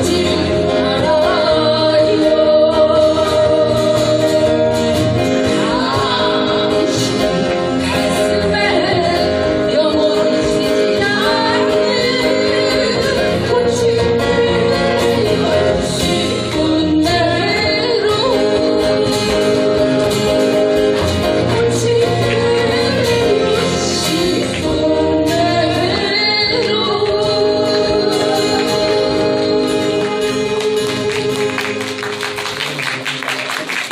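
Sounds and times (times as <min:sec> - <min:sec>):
person singing: 0:00.0 - 0:32.3
guitar: 0:00.0 - 0:33.9.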